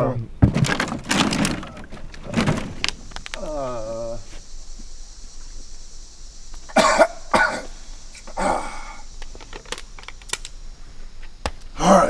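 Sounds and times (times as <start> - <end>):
person coughing: 6.7 - 8.9.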